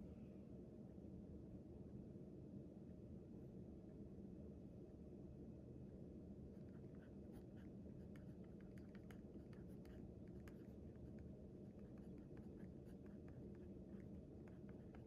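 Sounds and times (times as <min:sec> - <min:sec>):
pen scratching on paper: 0:06.6 - 0:15.0.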